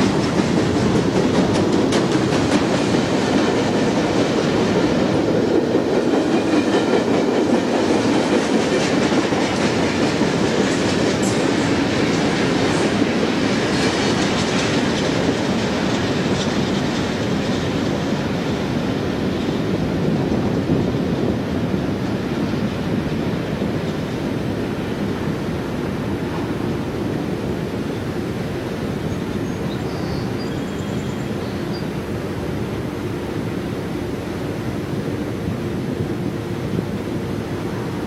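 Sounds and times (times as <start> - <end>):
faint repeated rail clicks: 0.0 - 18.8
train wheels rumbling on rails: 0.0 - 38.0.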